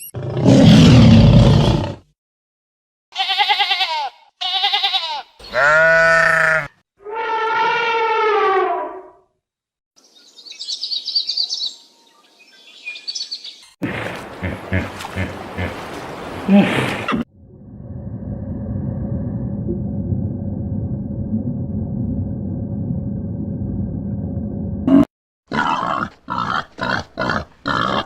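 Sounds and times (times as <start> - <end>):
wavering bleats: 3.2 - 7.4.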